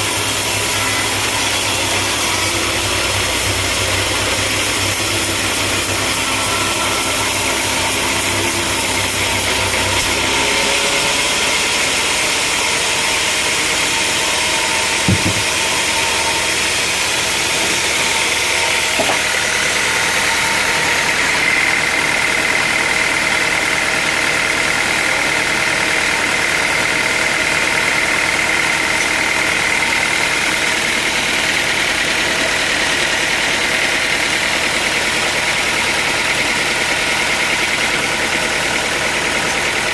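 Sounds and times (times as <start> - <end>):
high-pitched machine whine: 0.0 - 39.9
sawmill machinery humming: 0.0 - 39.9
sharp knock: 15.0 - 15.7.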